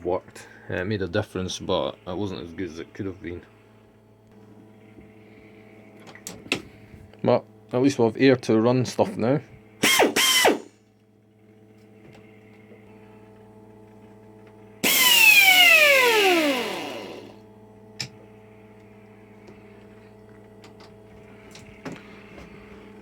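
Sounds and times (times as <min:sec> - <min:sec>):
air compressor humming: 0:01.5 - 0:23.0
loud hissing whine: 0:14.7 - 0:17.5.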